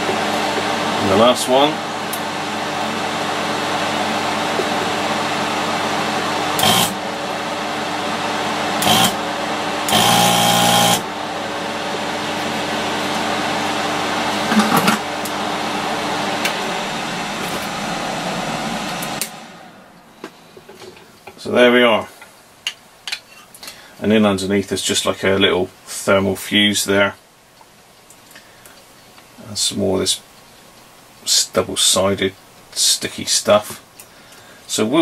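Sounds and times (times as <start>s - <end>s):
vacuum pump buzzing: 0.0s - 20.9s
desoldering tool whirring: 6.1s - 7.2s, 7.8s - 11.2s, 14.3s - 20.1s.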